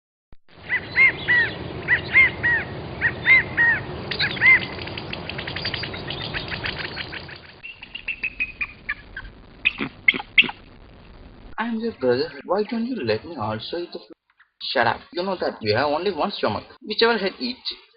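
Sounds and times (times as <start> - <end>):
bird calls: 0.6 - 10.6
background hiss: 0.6 - 17.9
bird clicking chirps and trill: 3.2 - 9.0, 9.6 - 10.6.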